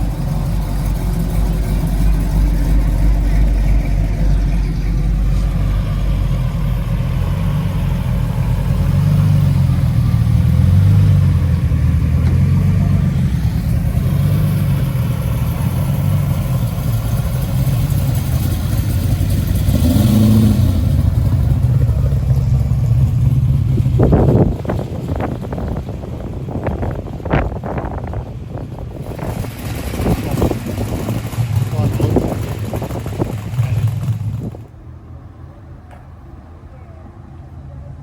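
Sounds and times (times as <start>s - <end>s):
car engine running: 0.0s - 36.5s.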